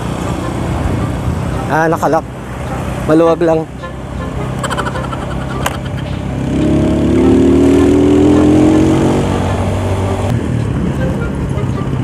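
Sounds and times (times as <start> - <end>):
wind and road noise: 0.0 - 12.0
motorcycle engine accelerating: 4.2 - 10.3.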